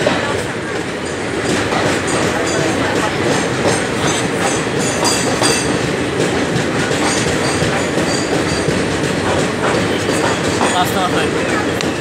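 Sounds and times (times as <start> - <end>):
train wheels rumbling and clattering: 0.0 - 12.0
high wheel squeaks: 6.9 - 12.0.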